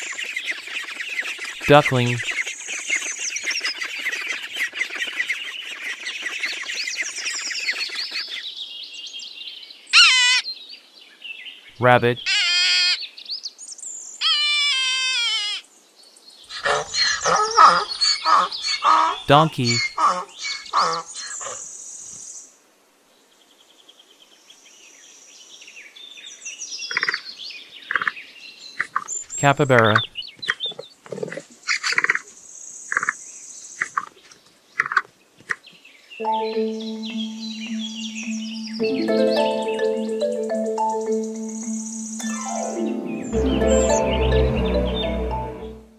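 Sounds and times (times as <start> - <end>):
birds chirping: 0.0 - 8.5, 16.5 - 21.4, 36.2 - 45.9.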